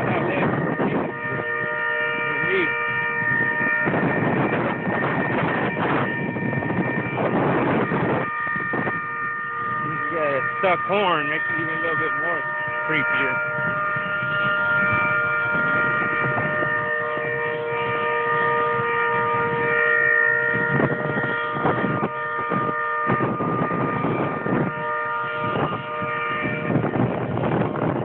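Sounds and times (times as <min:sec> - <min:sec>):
vehicle horn sounding: 0:00.0 - 0:27.6.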